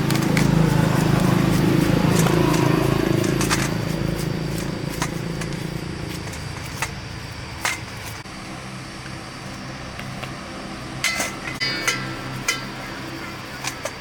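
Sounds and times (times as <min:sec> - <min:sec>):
low mechanical hum: 0:00.0 - 0:14.0
metal tools clicking: 0:11.0 - 0:14.0
ringing metal clink: 0:11.0 - 0:14.0.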